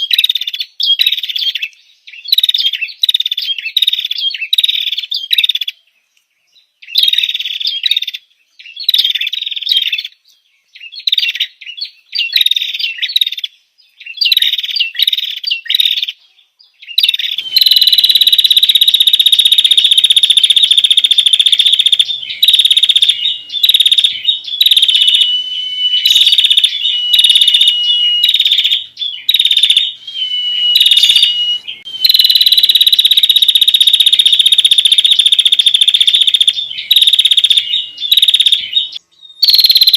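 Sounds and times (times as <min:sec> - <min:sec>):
bird chirping: 0:00.0 - 0:39.9
bird buzzing trill: 0:17.4 - 0:39.9.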